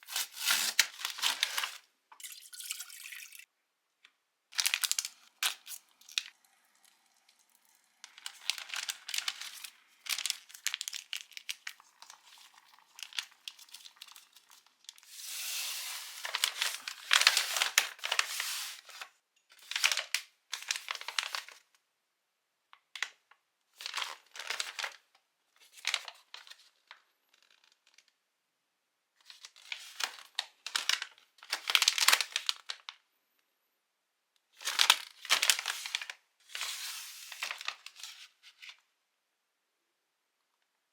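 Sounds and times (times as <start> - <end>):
plastic packaging crinkling: 0.0 - 1.8, 4.5 - 19.1
plastic packaging tearing: 0.0 - 1.8, 4.6 - 7.1, 8.0 - 19.0.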